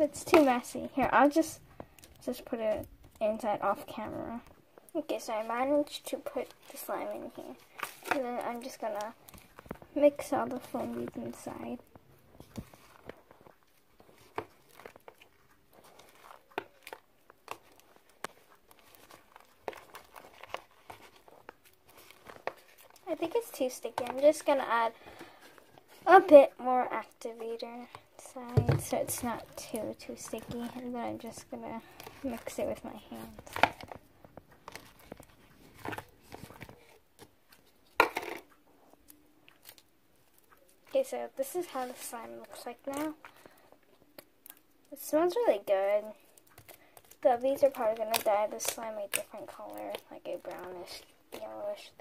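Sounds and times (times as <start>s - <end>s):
foam beads crackling in slime: 12.8s - 37.0s, 39.0s - 52.0s.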